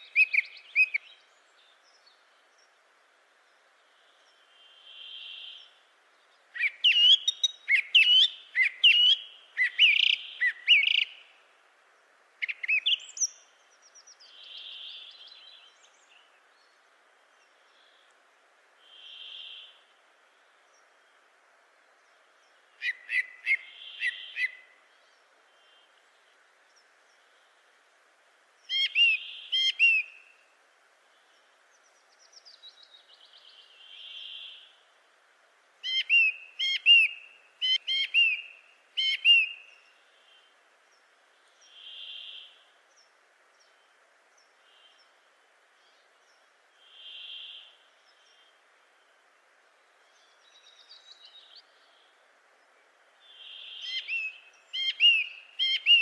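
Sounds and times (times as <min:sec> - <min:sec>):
birds chirping: 0:50.0 - 0:56.0.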